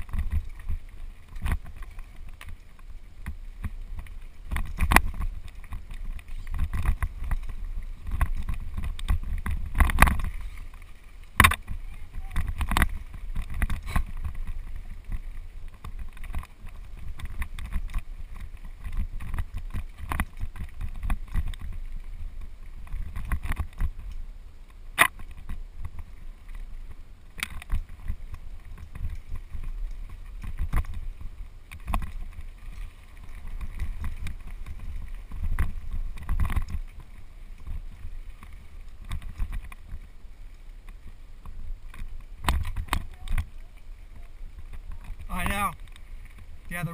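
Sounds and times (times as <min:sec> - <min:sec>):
bike rattling and knocking: 0:00.0 - 0:10.6, 0:11.3 - 0:24.0, 0:27.3 - 0:40.0
wind rumble on microphone: 0:00.0 - 0:46.9.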